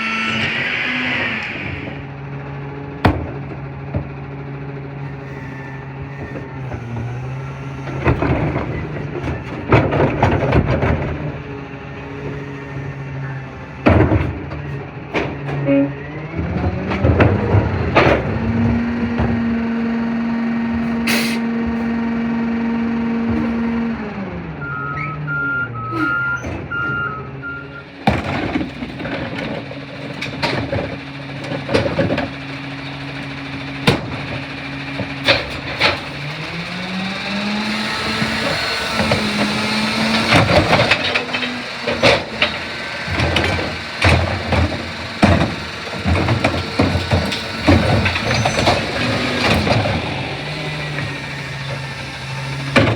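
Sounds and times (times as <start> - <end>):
garbage truck engine revving: 0.0 - 52.9
truck knocks and clatter: 1.5 - 52.9
reversing beeps: 24.6 - 27.9.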